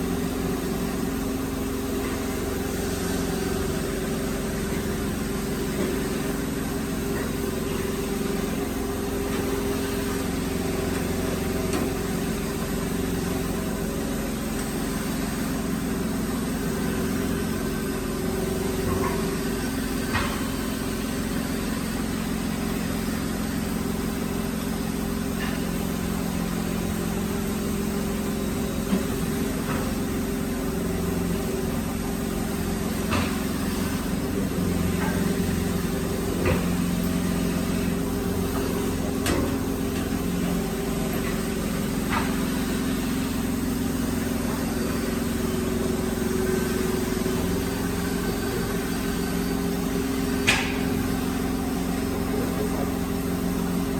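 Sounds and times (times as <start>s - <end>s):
drilling machine motor humming: 27.0s - 53.9s.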